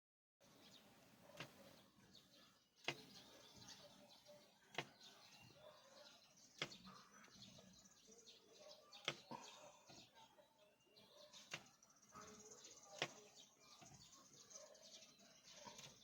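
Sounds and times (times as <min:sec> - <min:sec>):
birds chirping: 0:00.4 - 0:16.0.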